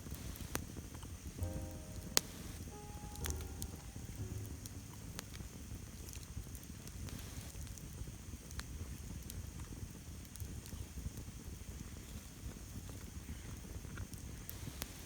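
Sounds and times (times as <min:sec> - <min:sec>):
campfire crackling: 0:00.0 - 0:15.0
sharp pops: 0:01.4 - 0:06.2
low steady rumble: 0:01.4 - 0:07.8.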